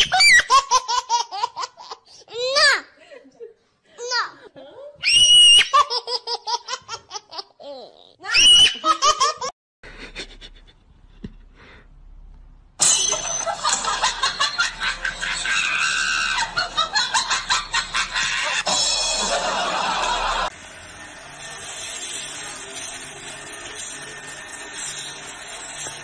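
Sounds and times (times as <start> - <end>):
person laughing: 8.8 - 11.5.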